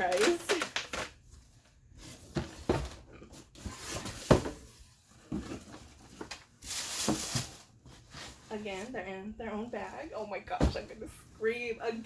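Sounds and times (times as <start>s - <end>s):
cardboard box knocks and thuds: 2.3s - 3.0s, 3.7s - 5.8s.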